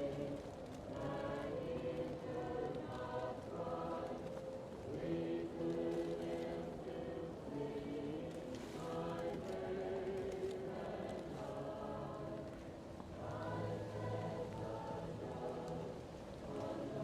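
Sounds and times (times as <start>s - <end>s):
muffled choir singing: 0.0s - 17.0s.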